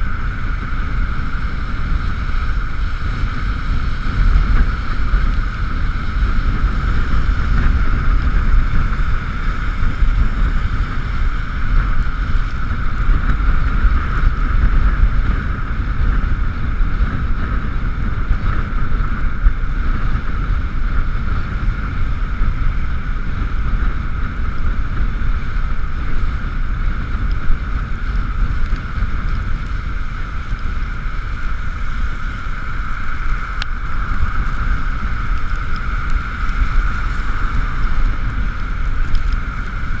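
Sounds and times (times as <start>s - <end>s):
road rumble: 0.0s - 40.0s
steady high whine: 0.0s - 40.0s
wind buffeting microphone: 0.0s - 40.0s.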